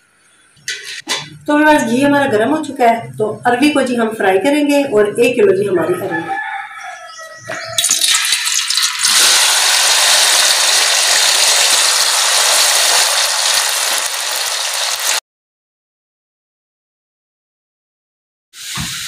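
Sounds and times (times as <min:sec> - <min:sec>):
food sizzling in ghee: 0:07.8 - 0:15.2.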